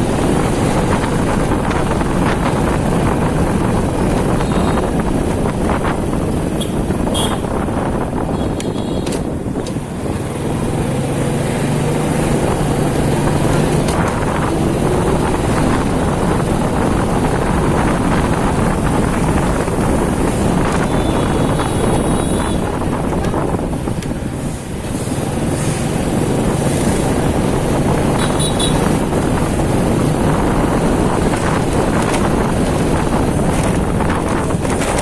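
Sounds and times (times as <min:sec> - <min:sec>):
city traffic: 0:00.0 - 0:35.0
motorcycle engine running: 0:00.0 - 0:35.0
wind rushing over microphone: 0:00.0 - 0:35.0.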